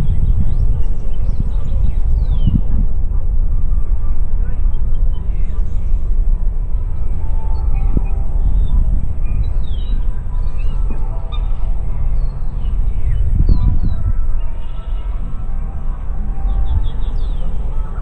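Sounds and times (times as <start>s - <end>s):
wind buffeting microphone: 0.0s - 18.0s
small birds chirping: 6.9s - 15.2s.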